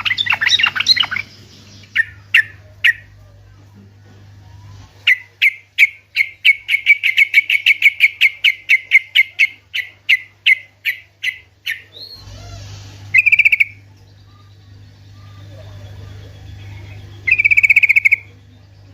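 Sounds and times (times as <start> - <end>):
bird chattering trill: 0.0 - 3.2, 5.0 - 12.3, 13.1 - 18.8
bird chip notes: 5.1 - 18.9.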